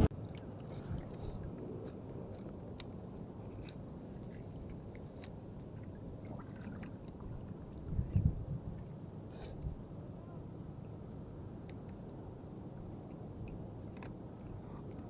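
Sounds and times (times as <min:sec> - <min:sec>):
water noise: 0:00.0 - 0:15.0
wind: 0:00.0 - 0:15.0.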